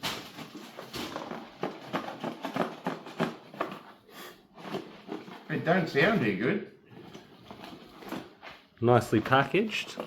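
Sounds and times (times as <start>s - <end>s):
packaging crinkling and rustling: 0.0s - 6.2s, 7.0s - 10.0s.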